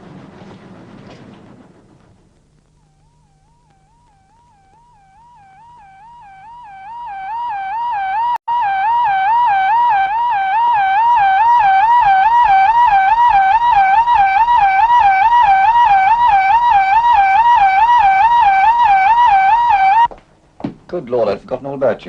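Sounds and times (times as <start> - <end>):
electronic warbling warning tone: 2.8 - 20.1.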